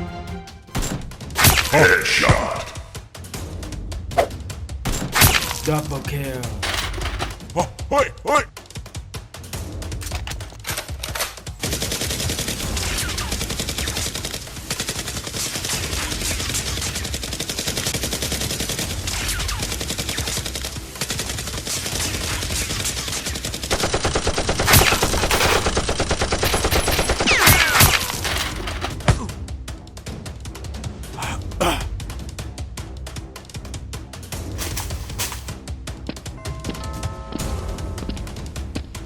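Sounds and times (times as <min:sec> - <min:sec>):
automatic gunfire: 0:11.6 - 0:29.0
sharp loud gunshots: 0:15.3 - 0:29.0.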